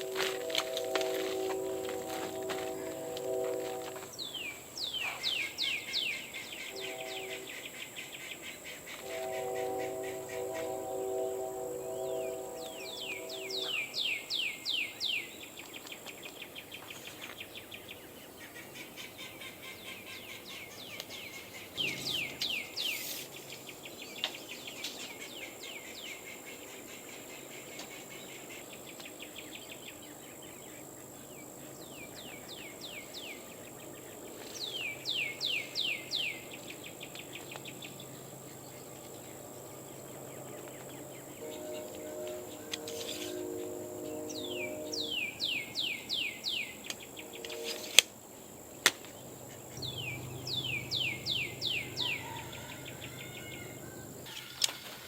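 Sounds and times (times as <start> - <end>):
bird chirping: 4.1 - 10.8, 11.9 - 48.0, 49.1 - 54.6
high-pitched whine: 40.3 - 48.0, 49.2 - 54.2.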